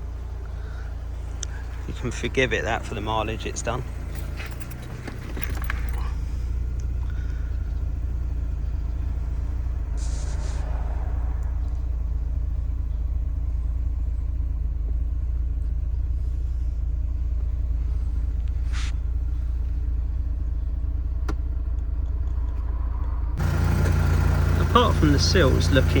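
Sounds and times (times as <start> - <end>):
car engine idling: 0.0 - 26.0
brief hiss: 10.0 - 10.8.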